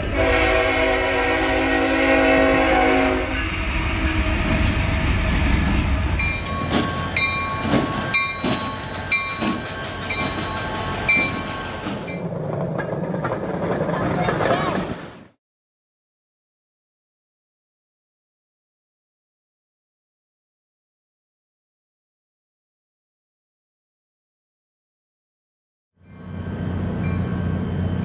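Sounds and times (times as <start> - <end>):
locomotive air horn: 0.0 - 5.5
train rumble and wheel clacks: 0.0 - 15.1, 26.0 - 28.0
bell ringing: 6.2 - 12.3.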